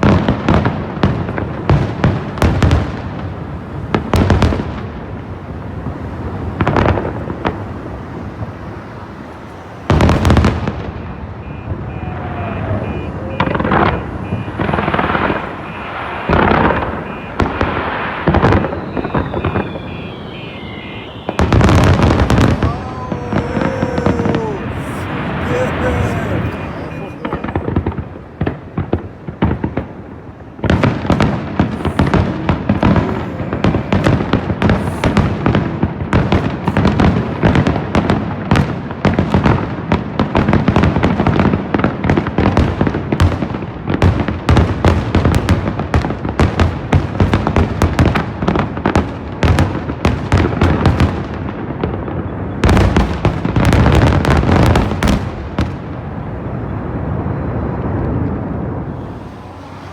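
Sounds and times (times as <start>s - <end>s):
fireworks bursting and crackling: 13.4s - 29.9s.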